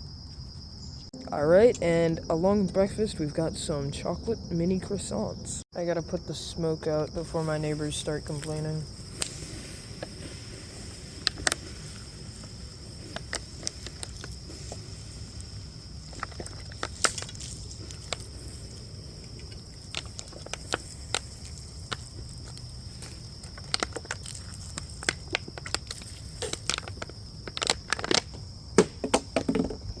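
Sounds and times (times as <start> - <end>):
crickets droning: 0.0 - 30.0
campfire crackling and popping: 7.2 - 28.9.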